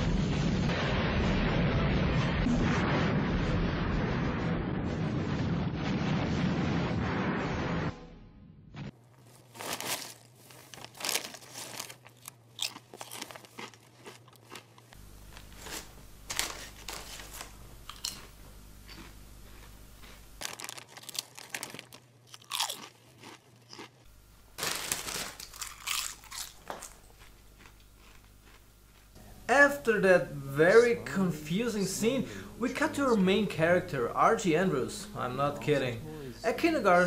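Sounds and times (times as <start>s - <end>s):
person chewing crunchy food: 9.1s - 29.2s.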